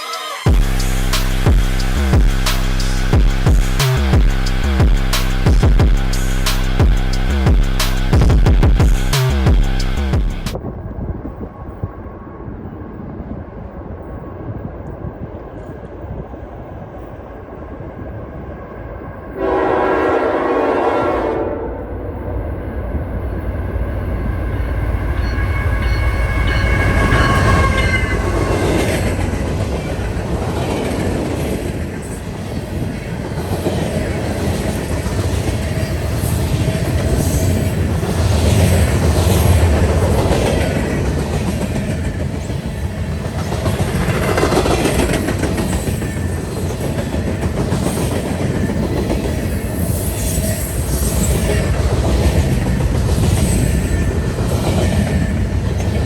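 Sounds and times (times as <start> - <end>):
locomotive engine rumble: 0.5 - 11.6
train air horn blast: 19.4 - 22.2, 25.4 - 29.1.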